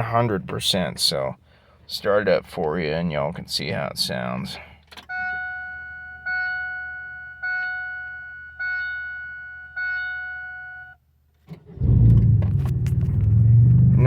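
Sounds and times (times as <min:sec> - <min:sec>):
dashboard warning chime: 0:05.0 - 0:11.0
loud low exhaust rumble: 0:11.8 - 0:14.0.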